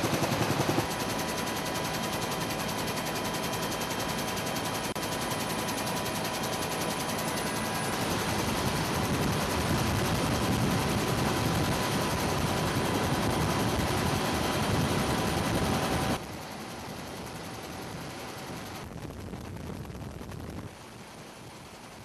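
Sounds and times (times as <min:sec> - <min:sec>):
helicopter rotor and engine: 0:00.0 - 0:22.0
rushing wind: 0:05.8 - 0:22.0.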